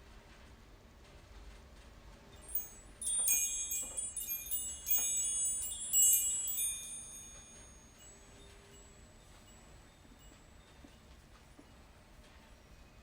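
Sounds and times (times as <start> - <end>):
chimes ringing: 2.4 - 10.4.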